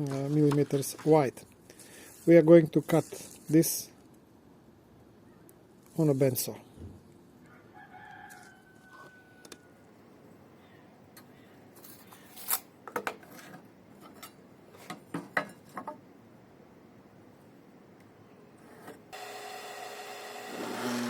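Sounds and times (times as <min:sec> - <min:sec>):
bandsaw motor running: 0:19.1 - 0:21.0.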